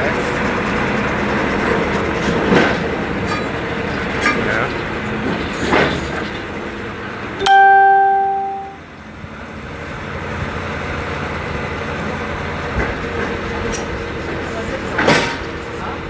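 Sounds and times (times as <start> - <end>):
drilling rig machinery droning: 0.0 - 7.4, 8.8 - 16.0
bright chime-like ring: 7.4 - 8.8.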